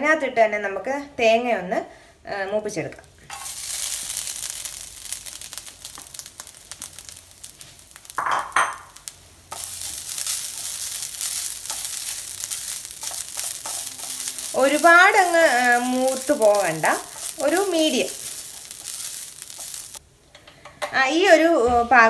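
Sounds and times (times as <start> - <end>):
coconut sizzling in hot fat: 2.6 - 20.1.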